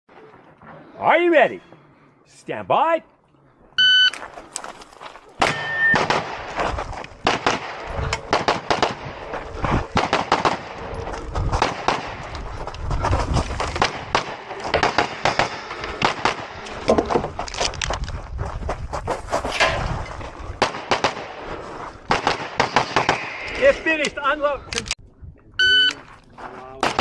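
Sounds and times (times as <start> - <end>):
pistol shots: 5.4 - 6.6, 7.2 - 9.1.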